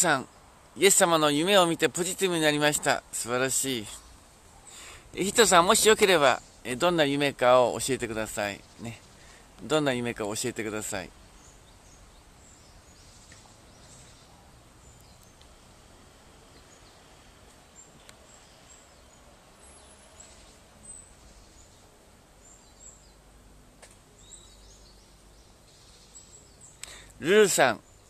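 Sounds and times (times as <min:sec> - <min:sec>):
background hiss: 0:00.0 - 0:28.0
faint high bird chirps: 0:17.8 - 0:23.2, 0:24.2 - 0:28.0.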